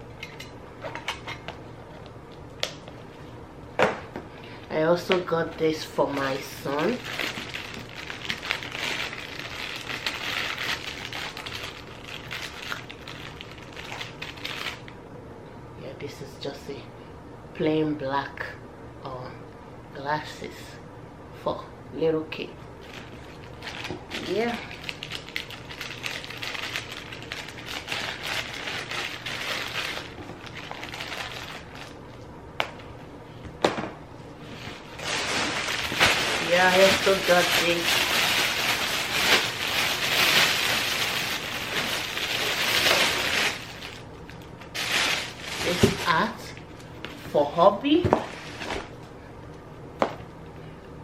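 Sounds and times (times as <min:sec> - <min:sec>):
packaging crinkling and rustling: 0:05.0 - 0:14.9, 0:22.8 - 0:32.3, 0:34.4 - 0:47.2.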